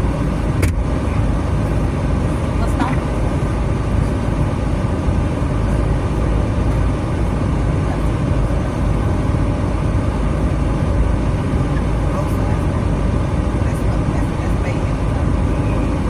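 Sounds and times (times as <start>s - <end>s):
vehicle engine and road noise: 0.0s - 16.0s.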